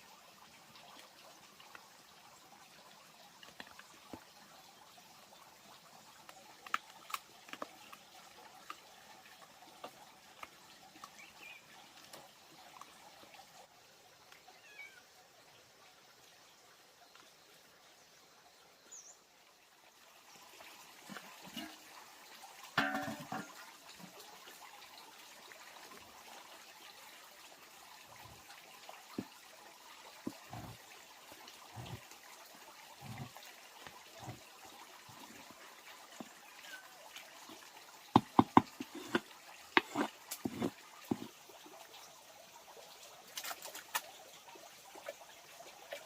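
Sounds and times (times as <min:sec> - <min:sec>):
light knocks and thumps: 0:38.2 - 0:41.3.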